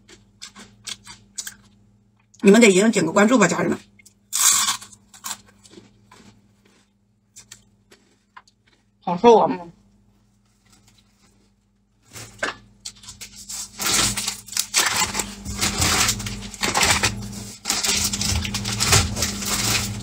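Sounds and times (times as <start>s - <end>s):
crunchy snack being chewed: 0.0s - 1.8s, 3.8s - 9.0s.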